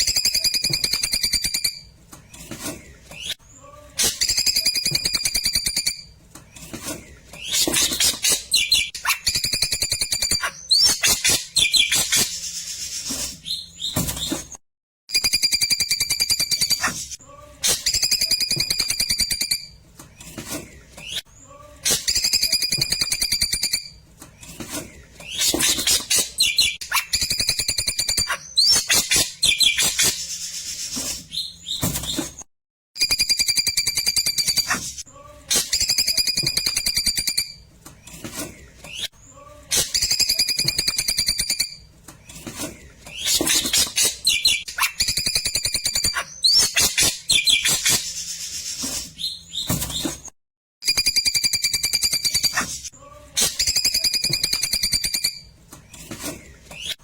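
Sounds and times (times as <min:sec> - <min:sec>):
bird song with buzzy trills: 0:00.0 - 0:14.4, 0:15.1 - 0:17.0, 0:17.6 - 0:20.3, 0:25.2 - 0:32.4, 0:38.8 - 0:50.1.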